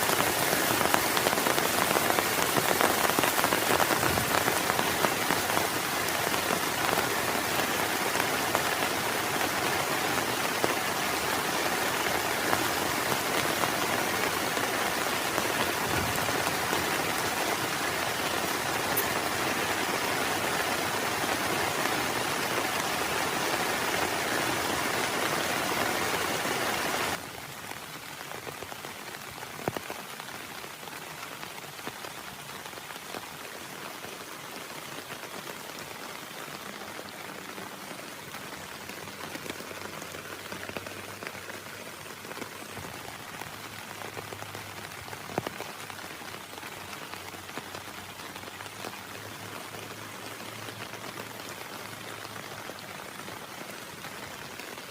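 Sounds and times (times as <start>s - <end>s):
raindrops ticking: 0.0s - 27.2s
heavy rain hissing: 0.0s - 54.9s.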